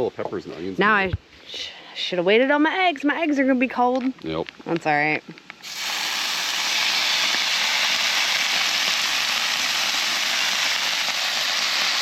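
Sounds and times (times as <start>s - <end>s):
food sizzling on a griddle: 5.6s - 12.0s.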